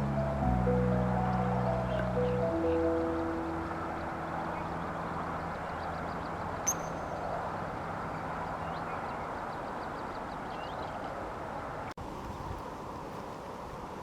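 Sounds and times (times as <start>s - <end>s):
outdoor background rumble: 0.0s - 9.3s
small birds chirping: 1.2s - 11.1s
sharp high click: 6.6s - 7.1s.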